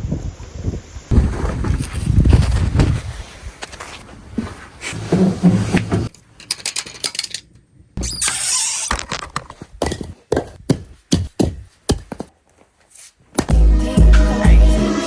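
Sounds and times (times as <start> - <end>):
knocks and thuds: 9.8 - 12.3.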